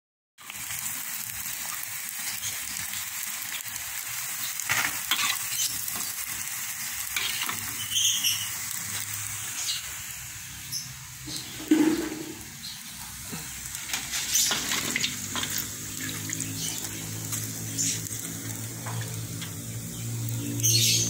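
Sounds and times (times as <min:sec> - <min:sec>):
crackers sizzling in hot oil: 0:00.4 - 0:21.0
spatula scraping a pan: 0:04.7 - 0:06.1, 0:07.2 - 0:08.4.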